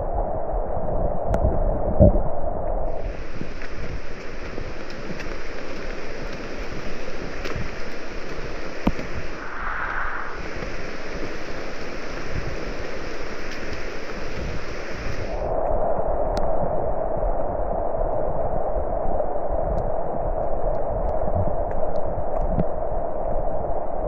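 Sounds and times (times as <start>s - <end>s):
heavy rain hissing: 2.9s - 15.5s
raindrops tapping close by: 3.0s - 9.4s, 10.4s - 15.3s.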